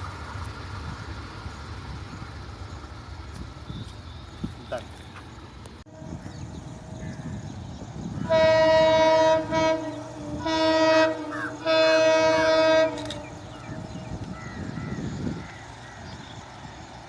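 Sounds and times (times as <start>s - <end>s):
train rumble: 0.0s - 17.0s
locomotive horn blasts: 8.2s - 13.4s.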